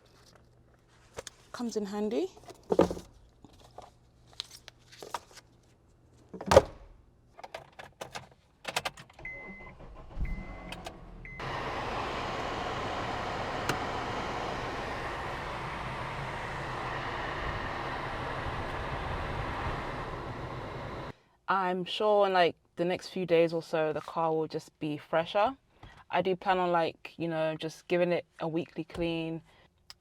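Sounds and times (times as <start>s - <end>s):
car warning chime beeps: 9.2s - 11.6s
blower fan rushing air: 11.4s - 21.1s.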